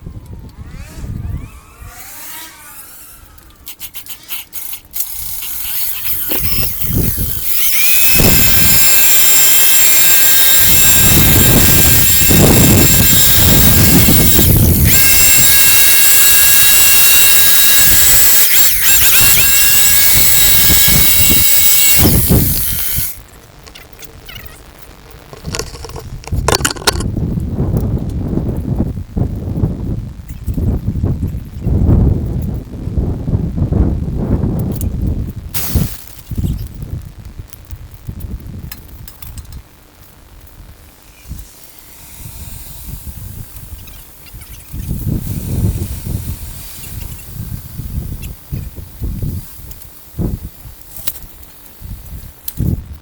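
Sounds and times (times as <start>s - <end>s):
power tool whining: 0.0s - 23.2s.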